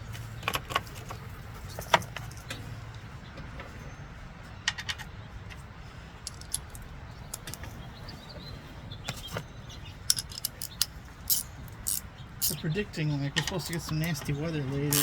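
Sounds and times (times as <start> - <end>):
small metal pieces clinking: 6.3 - 7.7.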